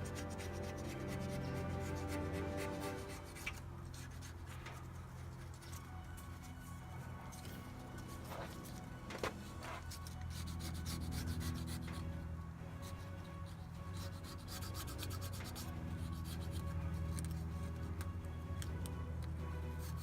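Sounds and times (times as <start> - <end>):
razor blade scraping metal: 0.0 - 5.0, 9.4 - 12.2, 12.8 - 17.8, 19.8 - 20.0
steady low hum: 0.0 - 20.0.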